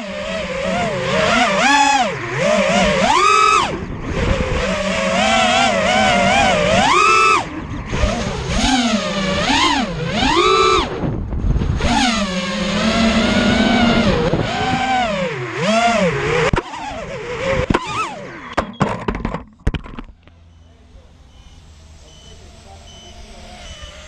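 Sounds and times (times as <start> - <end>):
drone motors whining: 0.0 - 24.0
sharp clicks and crackles: 18.5 - 20.4.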